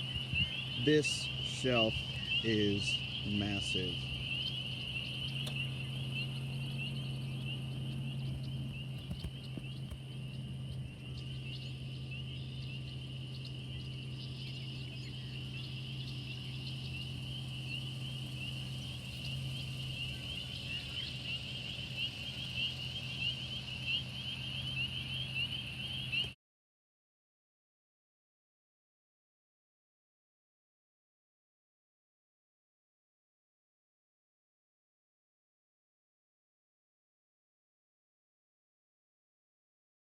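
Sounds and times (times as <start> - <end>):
chorus of high-pitched calling animals: 0.0 - 26.4
steady low hum: 0.0 - 26.4.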